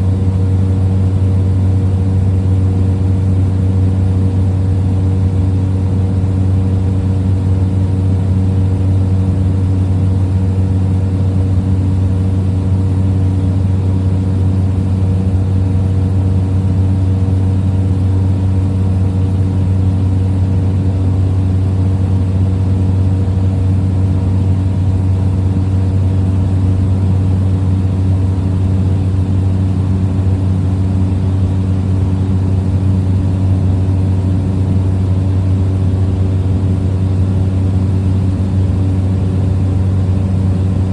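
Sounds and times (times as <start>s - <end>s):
small plane engine droning: 0.0s - 40.9s.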